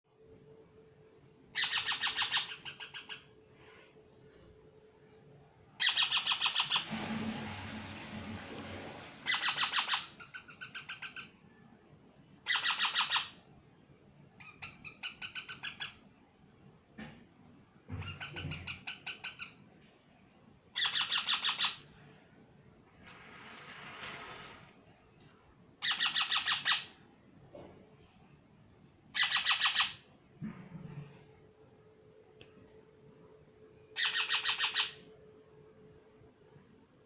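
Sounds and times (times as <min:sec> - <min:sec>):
parrot squawking: 0:01.5 - 0:03.3, 0:05.8 - 0:06.9, 0:09.2 - 0:11.3, 0:12.4 - 0:13.4, 0:14.4 - 0:16.0, 0:20.8 - 0:21.8, 0:25.8 - 0:27.0, 0:29.1 - 0:30.0, 0:34.0 - 0:35.1
rushing noise: 0:06.8 - 0:09.4.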